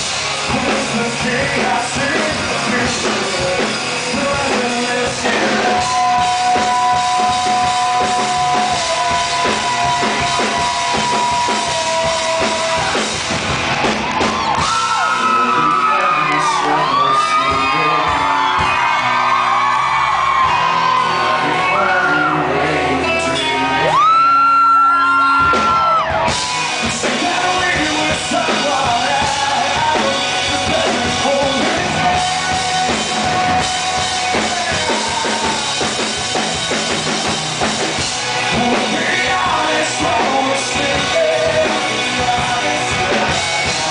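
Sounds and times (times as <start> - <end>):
drums: 0.0 - 43.9
live rock band: 0.0 - 43.9
man singing: 0.4 - 13.2, 15.0 - 18.8, 21.1 - 24.6, 26.8 - 36.1, 38.4 - 43.9.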